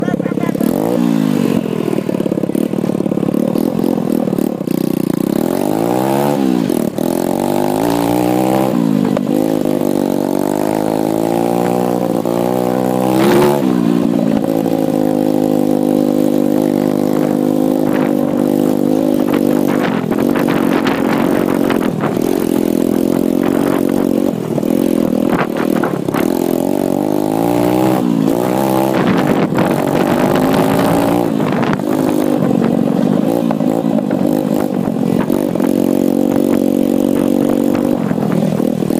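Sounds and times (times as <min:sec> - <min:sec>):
motorbike engine revving: 0:00.0 - 0:38.9.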